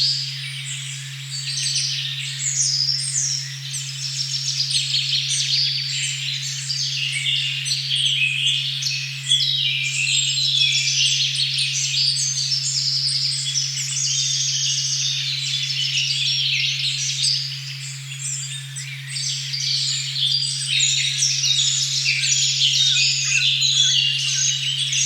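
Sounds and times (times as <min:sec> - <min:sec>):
birds singing: 0:00.0 - 0:25.0
steady pure tone: 0:21.0 - 0:25.0.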